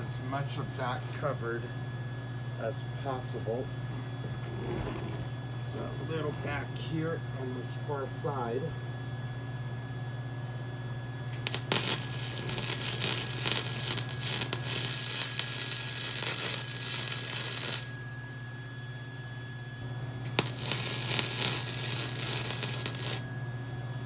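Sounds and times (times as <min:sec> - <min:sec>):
steady low hum: 0:00.0 - 0:24.0
welding arc crackling: 0:11.4 - 0:18.0, 0:20.3 - 0:23.9.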